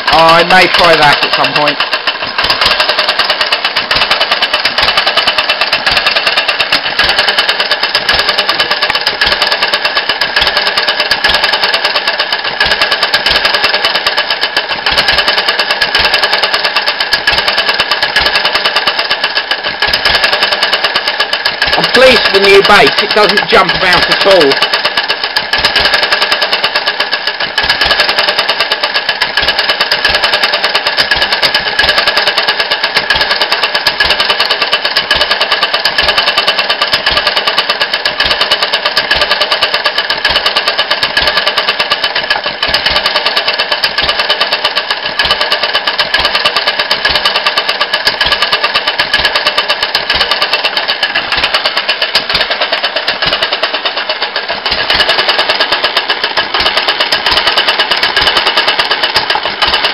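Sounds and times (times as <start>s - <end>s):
single-cylinder engine clattering: 0.0s - 59.9s
engine firing thumps: 49.0s - 59.9s.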